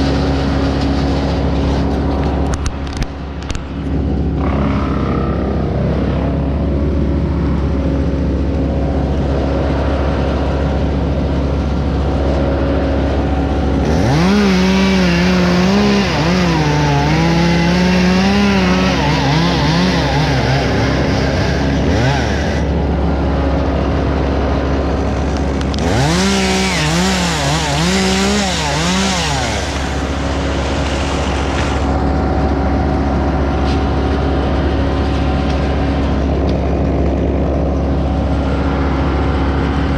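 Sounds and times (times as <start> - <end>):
steady engine drone: 0.0 - 39.9
chainsaw cutting: 13.6 - 22.8, 24.9 - 32.6.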